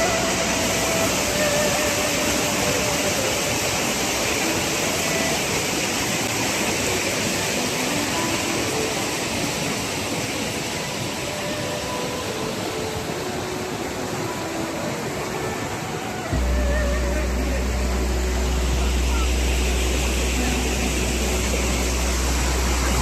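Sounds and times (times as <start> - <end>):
stream water rushing: 0.0 - 23.0.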